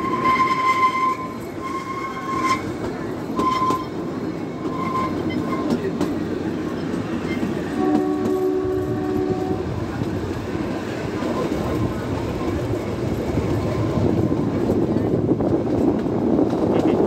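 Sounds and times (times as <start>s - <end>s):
train horn: 0.0s - 2.7s, 3.4s - 4.0s, 4.6s - 5.8s, 7.7s - 9.8s
wheels rumbling on rails: 0.0s - 17.0s.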